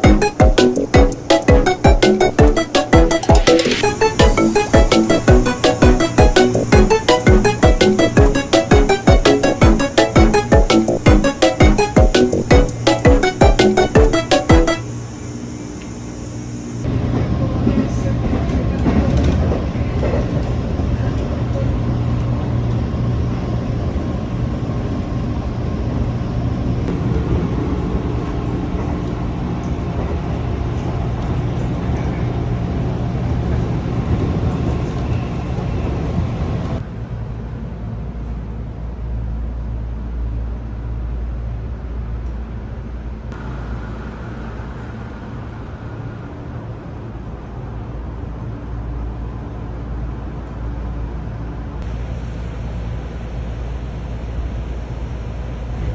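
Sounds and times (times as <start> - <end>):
train rumbling: 16.9 - 42.2.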